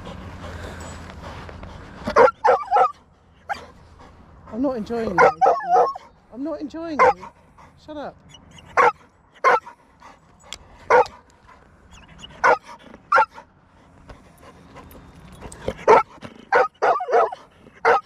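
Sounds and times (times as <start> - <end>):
dog barking: 2.1 - 3.6, 5.2 - 6.1, 7.0 - 7.2, 8.7 - 9.7, 10.9 - 11.2, 12.4 - 13.4, 15.8 - 18.0.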